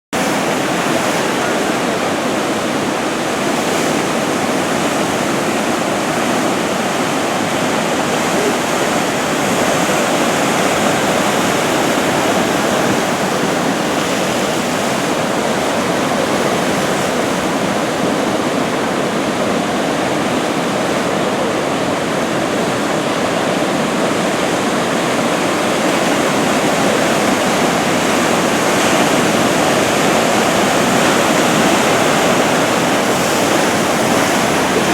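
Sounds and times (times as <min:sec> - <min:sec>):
ocean surf breaking on shore: 0:00.1 - 0:34.9.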